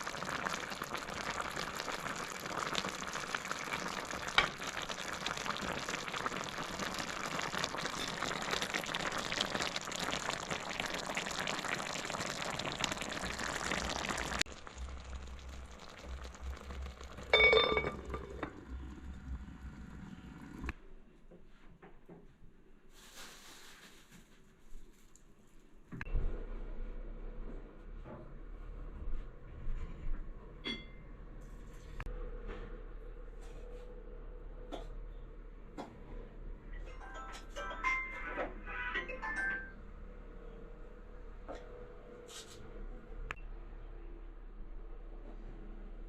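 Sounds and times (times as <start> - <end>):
food sizzling and crackling: 0.0 - 20.7.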